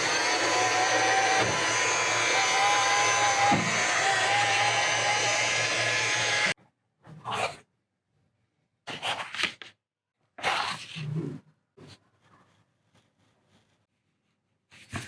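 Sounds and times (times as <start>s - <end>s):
small electric motor humming: 0.0s - 6.6s.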